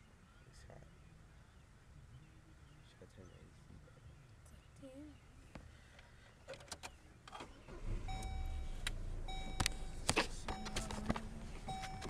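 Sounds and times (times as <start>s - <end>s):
car engine rumble: 0.8s - 12.0s
ignition clicks: 6.5s - 12.0s
car warning chime: 8.0s - 12.0s.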